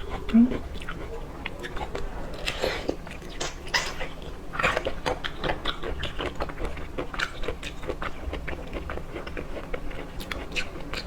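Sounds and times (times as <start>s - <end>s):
wet chewing and lip-smacking: 0.0s - 11.0s.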